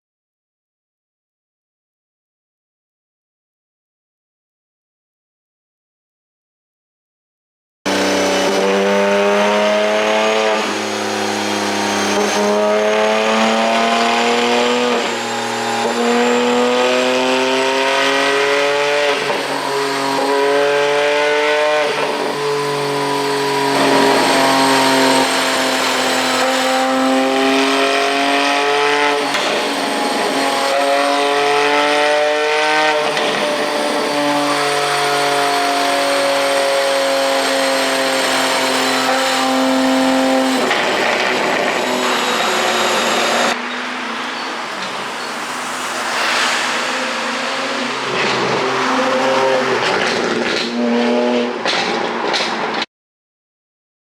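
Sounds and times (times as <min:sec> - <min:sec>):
car engine accelerating through gears: 0:07.9 - 0:52.8
exhaust crackling: 0:08.1 - 0:51.0.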